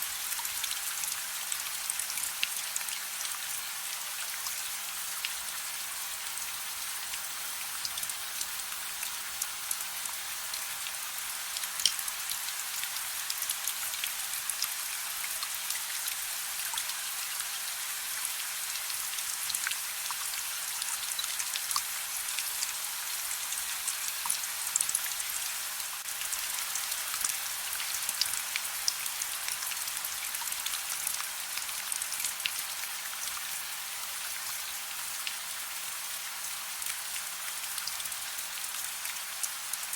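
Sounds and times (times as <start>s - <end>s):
soft rain hiss: 0.0s - 39.9s
raindrops ticking on a surface: 6.8s - 22.8s, 23.4s - 35.6s.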